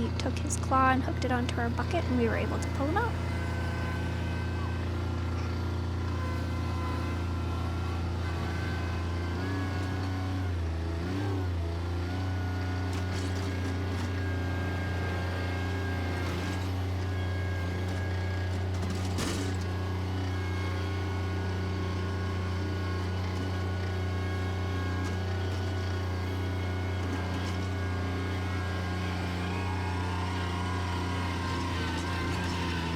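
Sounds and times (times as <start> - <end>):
tractor engine running: 0.0 - 11.0, 12.3 - 32.9.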